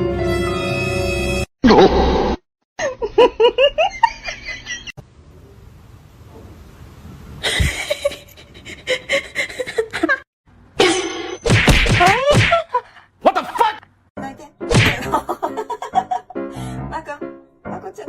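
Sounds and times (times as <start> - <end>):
person laughing: 7.4 - 10.2, 14.9 - 16.4.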